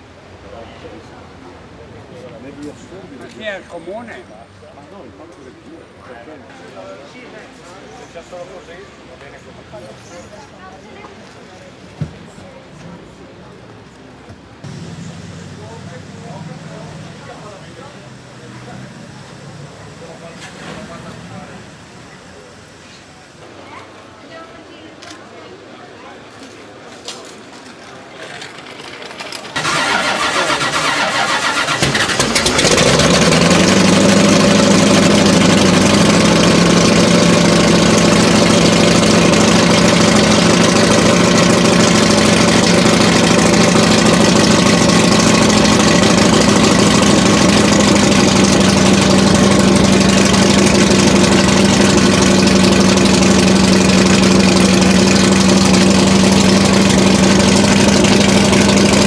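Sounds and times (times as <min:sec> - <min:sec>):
car engine cranking: 0:14.6 - 0:23.1, 0:28.4 - 0:59.0
car engine idling: 0:14.6 - 0:23.5, 0:29.4 - 0:59.0.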